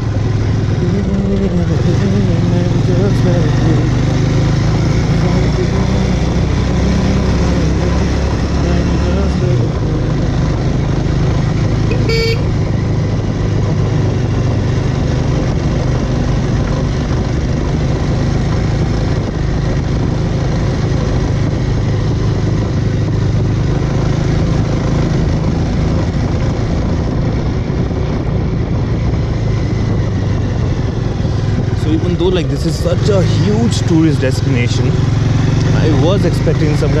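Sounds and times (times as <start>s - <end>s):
motorcycle engine running: 0.0s - 37.0s
motorcycle horn toot: 11.9s - 12.6s.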